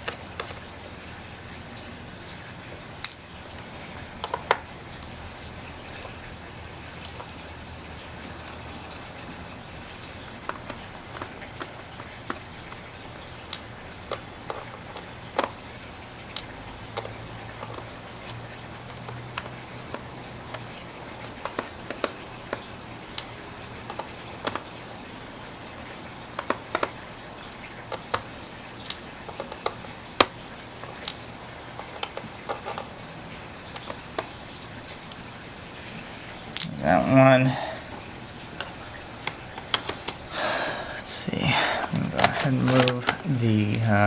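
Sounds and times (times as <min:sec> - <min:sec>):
metal tools clicking on laptop: 0:38.6 - 0:40.2.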